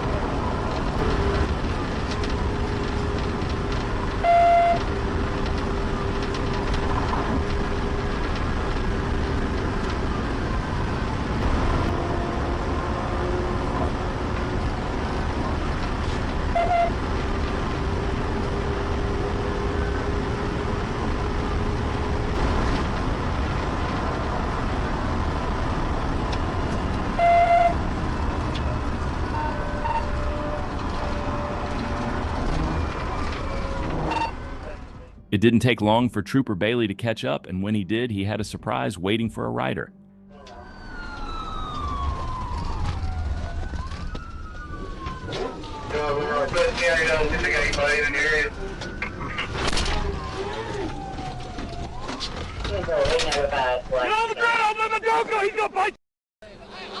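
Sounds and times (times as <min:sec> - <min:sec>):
car engine and road noise: 0:00.0 - 0:57.0
loud car horn blast: 0:27.2 - 0:27.8.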